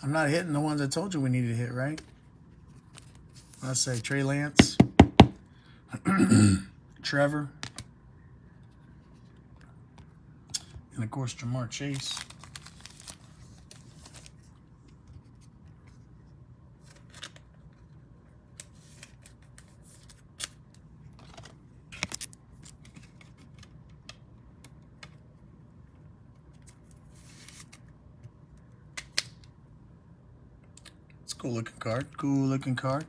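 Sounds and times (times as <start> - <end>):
low steady hum: 0.0 - 33.0
trading cards clicks and snaps: 28.9 - 29.6.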